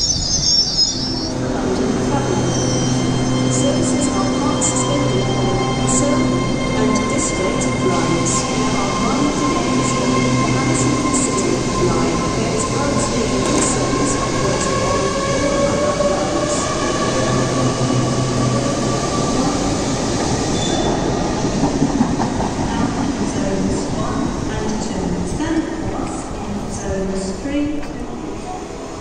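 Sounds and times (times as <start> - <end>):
wheels squealing on rails: 0.0 - 19.7, 20.5 - 21.6
train running past: 1.3 - 29.0.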